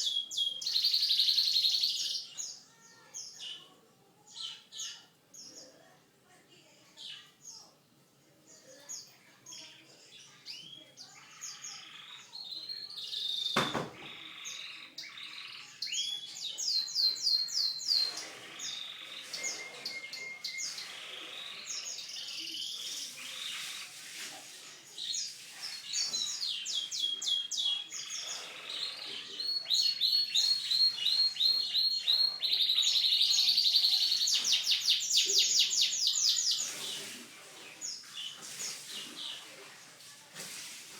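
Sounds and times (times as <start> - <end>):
canary singing: 0.0 - 2.6, 9.0 - 23.7, 25.7 - 37.0
sharp knock: 13.6 - 14.1.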